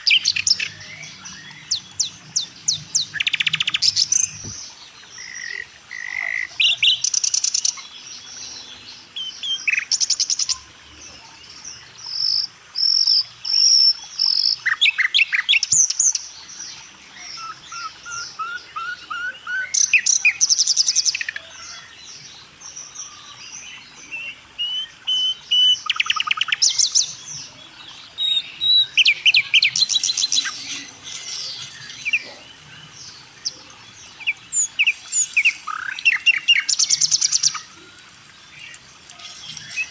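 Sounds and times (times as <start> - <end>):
birds chirping and singing: 0.0 - 7.1, 21.1 - 39.9.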